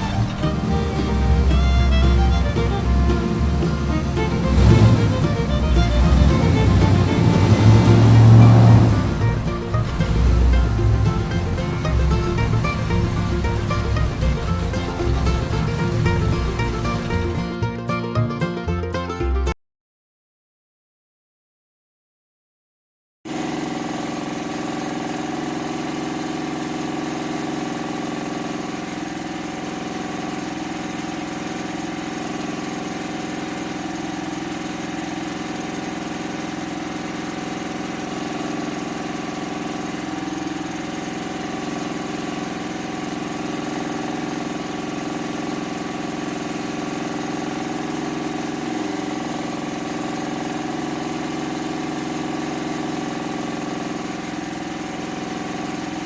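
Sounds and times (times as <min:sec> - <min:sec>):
small motor humming: 0:00.0 - 0:17.5.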